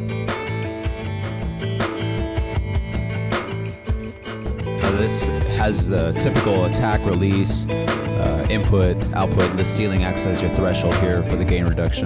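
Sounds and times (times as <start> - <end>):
band playing: 3.4 - 12.0.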